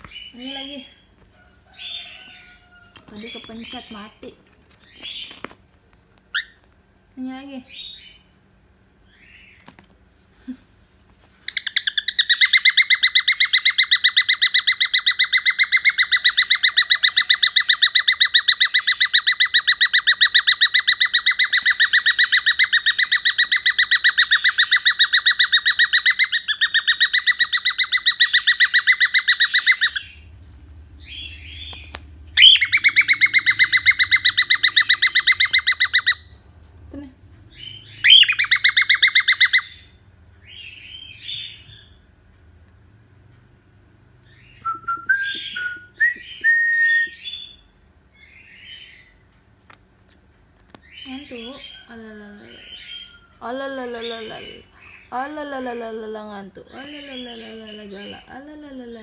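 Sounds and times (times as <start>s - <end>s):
bird trilling: 11.5s - 36.5s, 37.5s - 42.0s.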